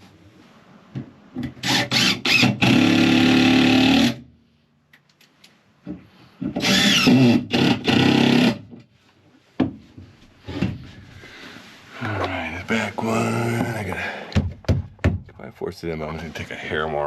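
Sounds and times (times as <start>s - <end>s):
electric power tool cutting wood: 6.6s - 8.6s.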